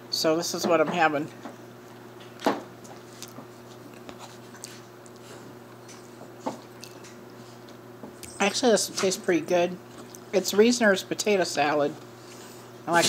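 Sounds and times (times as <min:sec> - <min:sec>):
quiet chewing: 0:01.8 - 0:07.8, 0:09.9 - 0:10.3.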